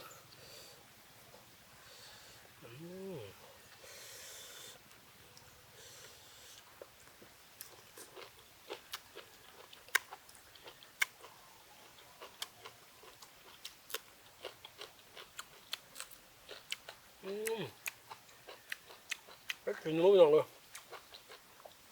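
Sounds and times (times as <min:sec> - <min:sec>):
close chewing with wet smacks: 0:04.8 - 0:21.9.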